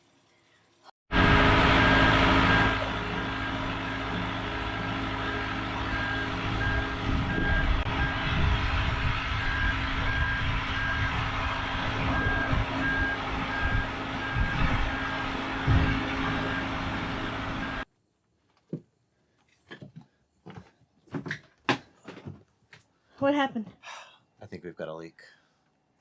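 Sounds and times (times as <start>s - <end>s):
travel lift engine humming: 1.1s - 17.8s
movement alarm beeping: 1.2s - 17.8s.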